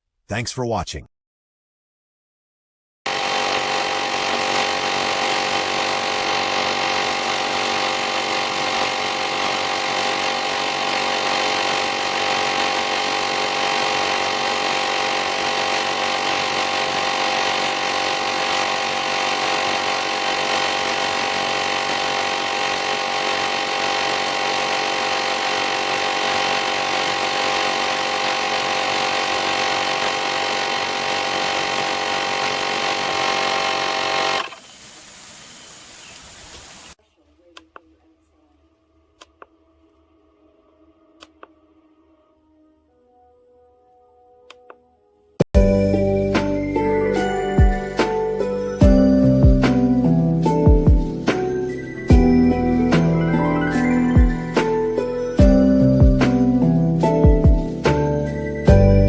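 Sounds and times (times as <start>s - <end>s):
air compressor motor whine: 3.1s - 34.5s.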